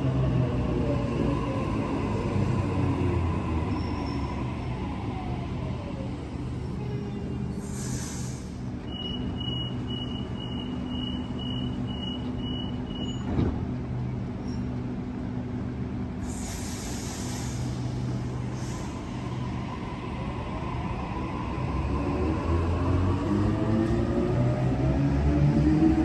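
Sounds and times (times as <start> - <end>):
air hissing: 7.6 - 8.7, 16.2 - 19.3
train doors thumping shut: 13.0 - 13.8.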